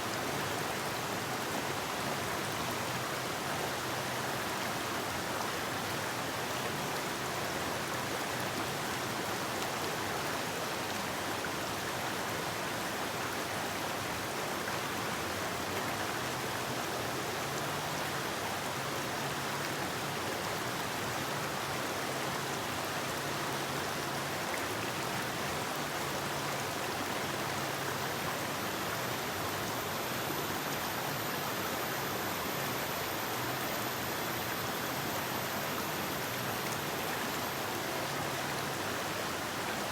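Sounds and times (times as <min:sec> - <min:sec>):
river water rushing over rocks: 0:22.4 - 0:39.9.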